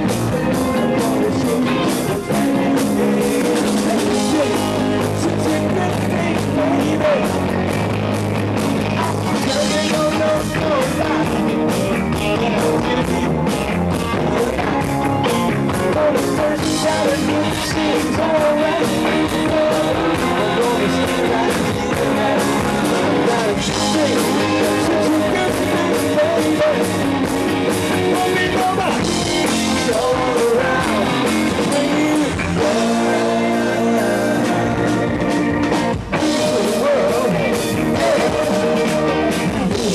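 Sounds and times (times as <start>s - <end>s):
lead vocal singing: 0.0s - 7.9s, 8.8s - 39.9s
drums: 0.0s - 39.9s
electric guitar: 0.0s - 39.9s.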